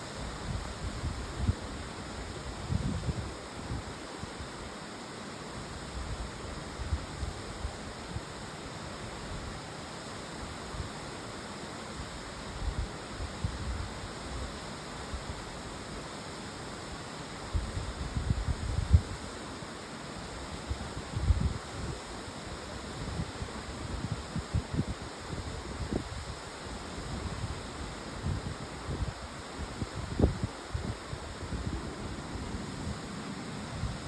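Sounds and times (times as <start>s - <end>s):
strong wind hissing: 20.2s - 34.0s.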